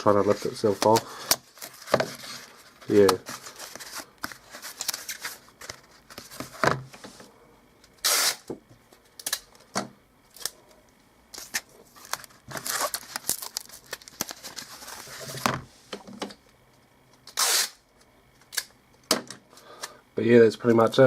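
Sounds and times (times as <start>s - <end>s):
tape ripping: 8.0s - 8.5s, 11.4s - 14.7s, 17.3s - 17.8s.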